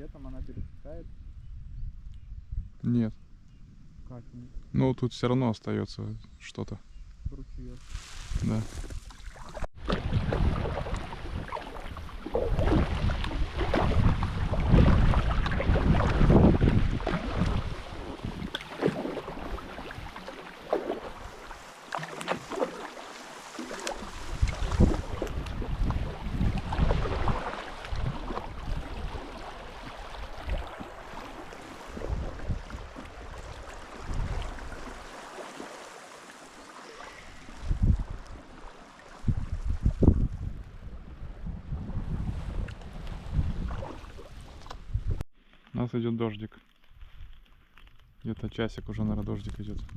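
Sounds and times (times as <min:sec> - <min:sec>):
wind buffeting microphone: 0:00.0 - 0:04.5, 0:07.2 - 0:21.7, 0:23.8 - 0:35.2, 0:37.1 - 0:45.2
water lapping around rowing boat: 0:09.0 - 0:45.1.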